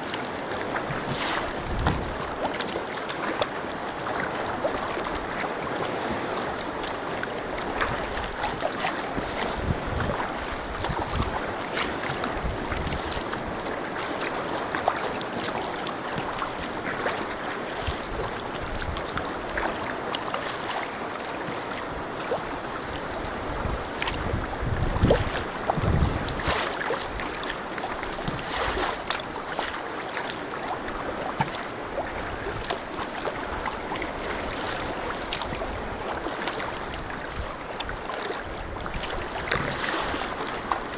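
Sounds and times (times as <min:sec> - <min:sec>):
low water slaps: 0:00.0 - 0:40.9
water splashing against kayak: 0:00.0 - 0:40.9
wind noise on microphone: 0:00.6 - 0:02.6, 0:07.5 - 0:13.8, 0:16.8 - 0:19.8, 0:21.8 - 0:29.8, 0:30.9 - 0:40.9.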